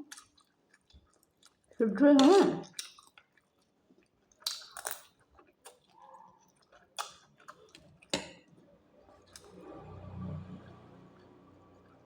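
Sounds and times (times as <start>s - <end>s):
chewing: 0.0s - 1.8s, 2.6s - 8.2s.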